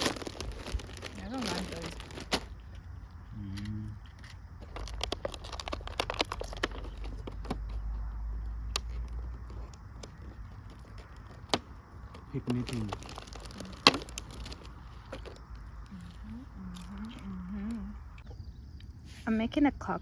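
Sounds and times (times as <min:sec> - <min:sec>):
plastic packaging crinkling: 0:00.0 - 0:02.8, 0:04.6 - 0:07.7, 0:10.1 - 0:15.7.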